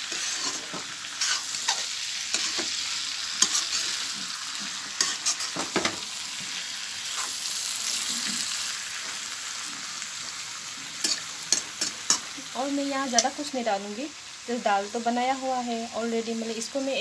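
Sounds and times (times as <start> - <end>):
food sizzling in a pan: 0.0 - 17.0
spatula scraping and knocking pan: 0.1 - 2.8, 3.4 - 6.0.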